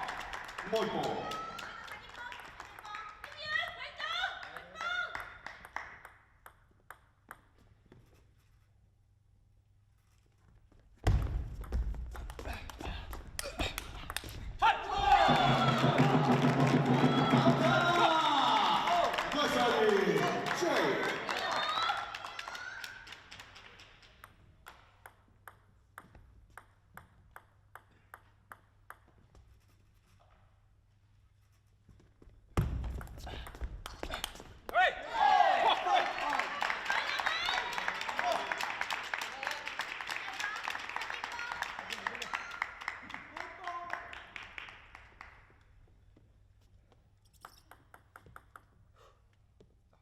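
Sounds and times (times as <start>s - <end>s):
applause: 0.0s - 6.2s, 12.1s - 24.8s, 34.1s - 45.7s
table tennis ball bouncing: 5.5s - 7.8s, 11.1s - 14.5s, 24.2s - 29.3s, 32.6s - 34.8s, 47.3s - 48.9s.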